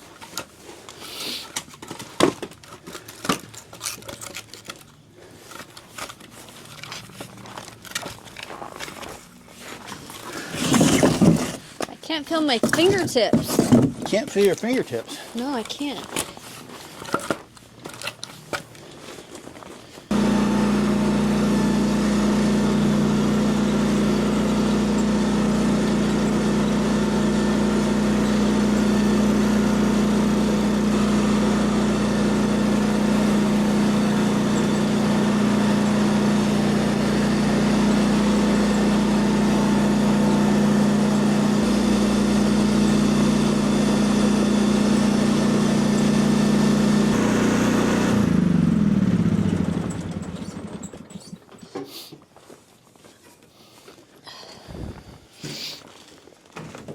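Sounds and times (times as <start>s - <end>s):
engine idling: 20.1s - 51.3s.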